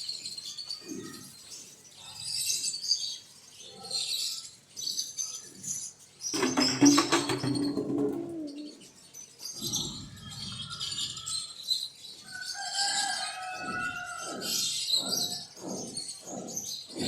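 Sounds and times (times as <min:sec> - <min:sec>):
birds chirping and calling: 0:00.0 - 0:17.0
repeated falling bird calls: 0:06.3 - 0:11.6.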